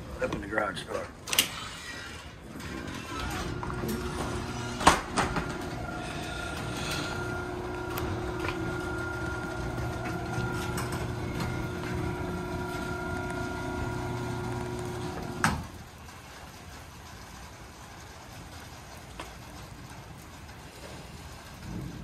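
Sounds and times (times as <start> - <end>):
garage door motor hum: 1.1 - 22.0
door travelling rumble: 1.2 - 15.9.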